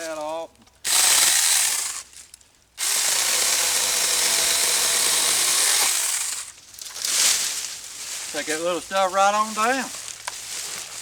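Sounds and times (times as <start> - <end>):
electric chainsaw cutting: 0.9 - 2.0, 2.8 - 6.5.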